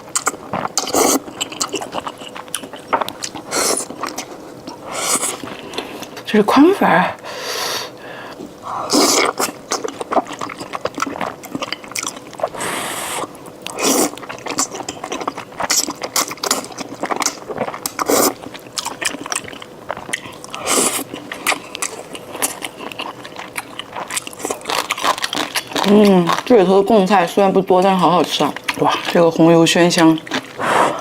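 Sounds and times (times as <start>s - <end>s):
wet chewing clicks: 0.0s - 6.2s, 8.9s - 31.0s
noodle slurps: 4.8s - 5.6s, 8.8s - 11.3s, 12.4s - 14.8s, 17.6s - 18.4s, 20.5s - 21.6s.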